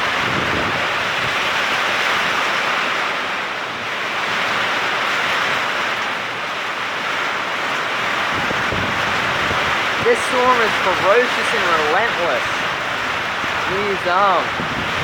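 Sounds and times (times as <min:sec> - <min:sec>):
heavy rain hissing: 0:07.8 - 0:15.0.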